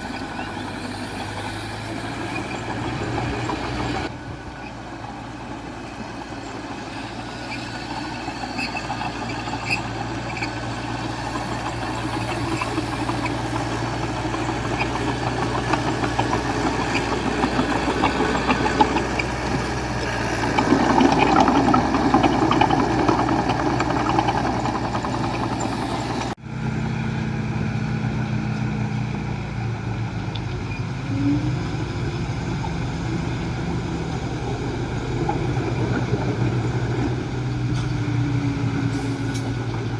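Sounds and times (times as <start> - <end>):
bulldozer diesel engine: 0.0 - 39.9.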